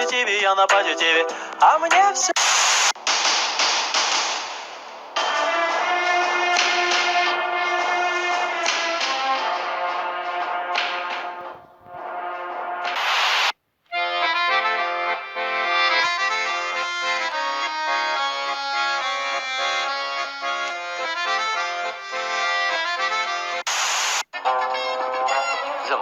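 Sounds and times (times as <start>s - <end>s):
accordion music: 0.0s - 1.6s, 5.2s - 13.0s, 13.9s - 23.7s, 24.4s - 26.0s
short burst of noise: 12.8s - 13.6s, 23.6s - 24.3s.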